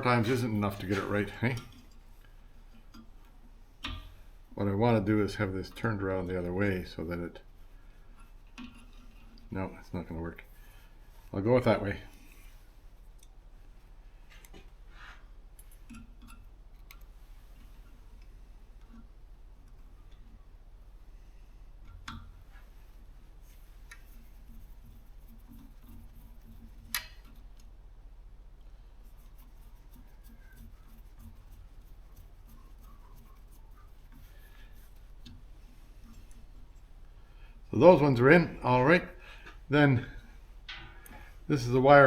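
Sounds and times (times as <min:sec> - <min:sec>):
low steady hum: 0:00.0 - 0:42.0
small clicks and taps of hand work: 0:01.5 - 0:04.2, 0:21.8 - 0:22.7, 0:23.8 - 0:24.3, 0:25.5 - 0:27.7
small parts clicking and tapping: 0:25.4 - 0:27.7.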